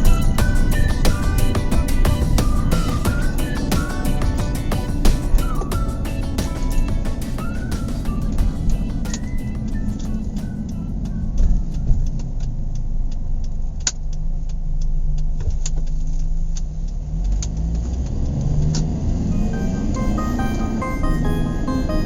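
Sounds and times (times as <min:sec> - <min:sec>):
car engine and road noise: 0:08.6 - 0:19.4.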